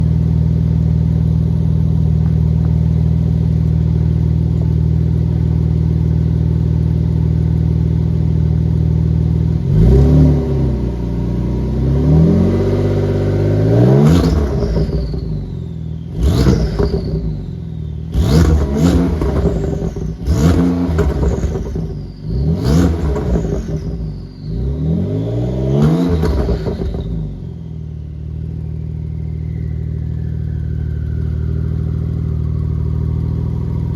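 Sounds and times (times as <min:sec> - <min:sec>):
car engine idling: 0:00.0 - 0:09.7, 0:13.0 - 0:33.9
engine revving blips: 0:09.6 - 0:33.9.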